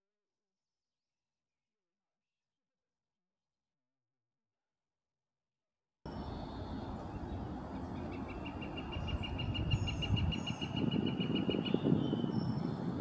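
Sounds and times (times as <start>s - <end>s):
road traffic rumble: 6.1s - 13.0s
bird calling rapid notes: 7.9s - 12.4s.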